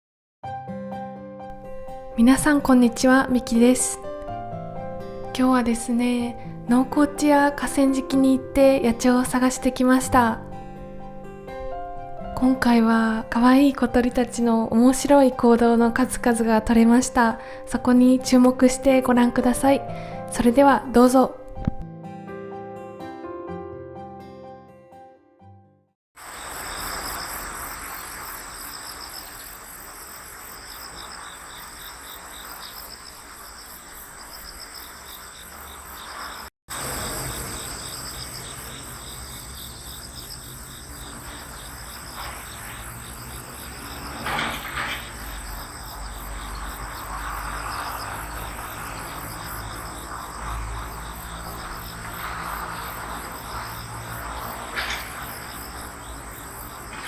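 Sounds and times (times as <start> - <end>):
crickets chirping in trills: 1.6 - 8.4, 26.2 - 57.0
background hiss: 26.2 - 57.0
sharper insect call: 26.2 - 57.0.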